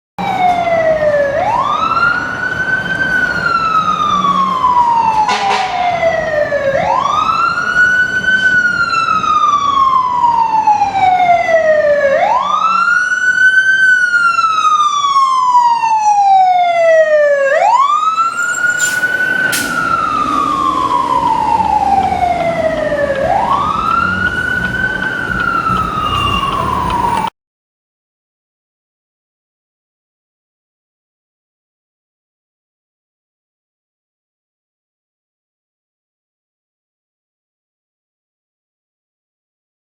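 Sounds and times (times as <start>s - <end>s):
truck engine rumble: 0.2s - 15.6s, 17.2s - 27.3s
fire engine siren wailing: 0.2s - 27.3s.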